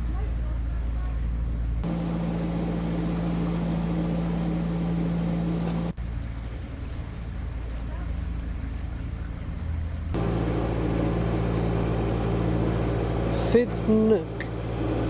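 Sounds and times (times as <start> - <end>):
boat diesel engine humming: 1.8 - 15.0
noisy rush: 10.2 - 15.0.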